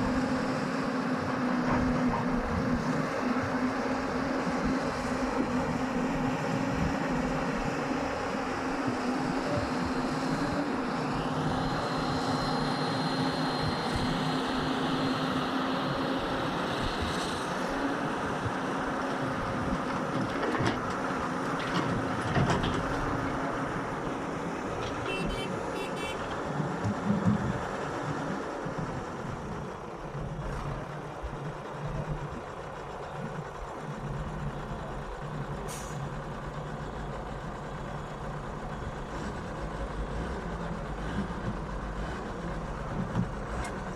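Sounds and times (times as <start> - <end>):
diesel engines running: 0.0 - 43.9.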